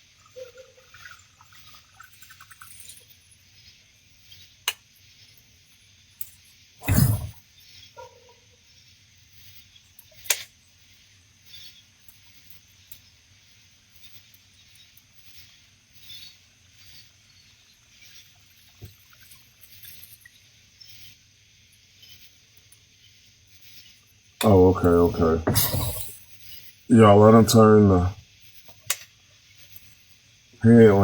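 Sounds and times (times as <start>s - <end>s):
faint high hiss: 0.0s - 31.0s
dull thump: 25.4s - 26.1s.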